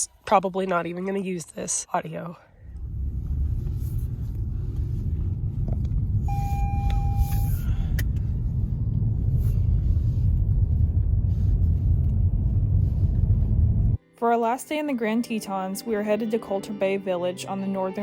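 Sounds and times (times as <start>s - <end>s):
car rumble from inside: 2.6s - 14.0s
short beep: 6.2s - 7.7s.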